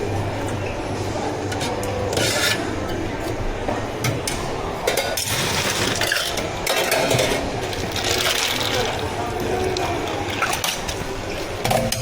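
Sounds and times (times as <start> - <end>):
cups and utensils clinking: 1.4 - 12.0.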